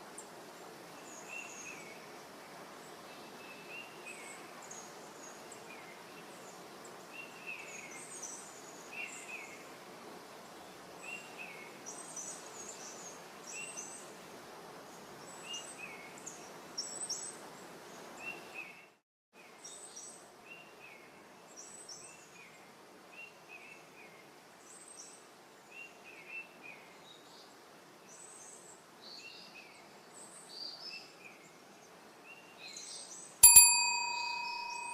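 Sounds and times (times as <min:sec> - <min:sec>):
background hiss: 0:00.0 - 0:34.9
bell-like ding: 0:33.4 - 0:34.9.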